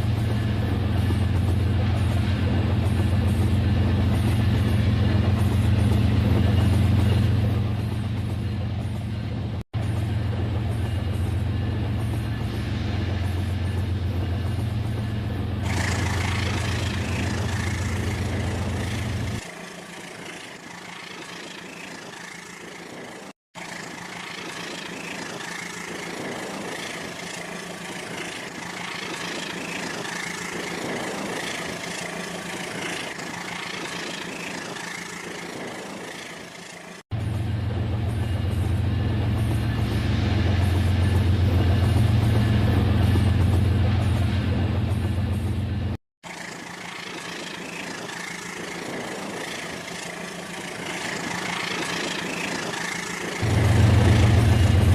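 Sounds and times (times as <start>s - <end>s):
toy train running on track: 15.7s - 37.0s, 46.2s - 54.9s.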